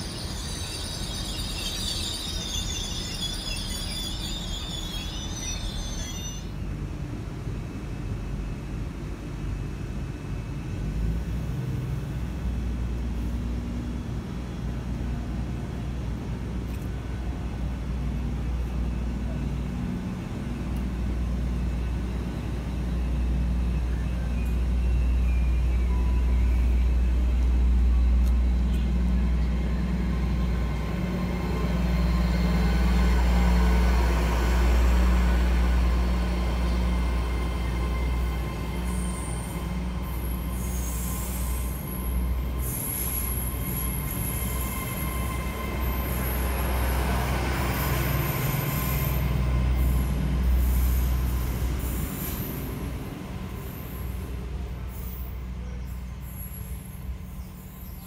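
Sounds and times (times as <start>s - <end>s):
thin high tones: 0.0s - 6.6s
train wheels rumbling: 0.0s - 58.0s.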